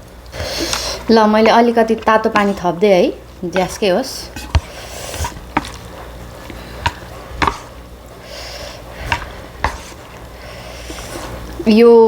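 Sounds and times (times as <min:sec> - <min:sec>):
utensils knocking against pot: 0:06.5 - 0:07.7.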